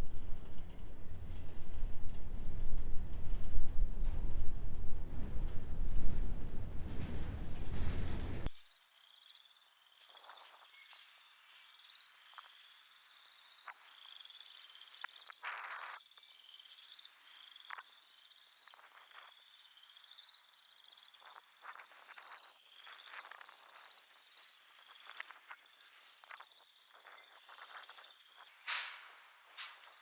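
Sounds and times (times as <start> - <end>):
frogs trilling: 8.6 - 28.7.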